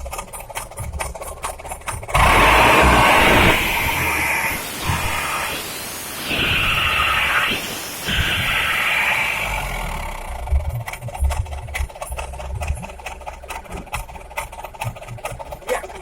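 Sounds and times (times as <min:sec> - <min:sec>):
loud diesel exhaust revving: 0:00.0 - 0:16.0.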